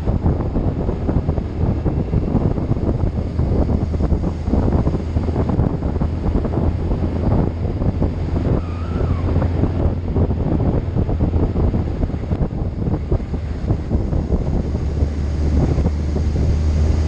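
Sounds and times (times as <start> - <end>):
low engine hum: 0.0 - 17.0
wind buffeting microphone: 0.0 - 17.0
faint whistle-like tone: 8.6 - 9.4.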